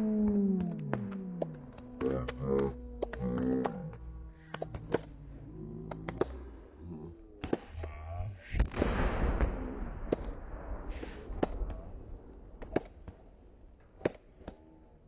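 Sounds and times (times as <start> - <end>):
fireworks bangs: 8.4 - 14.4.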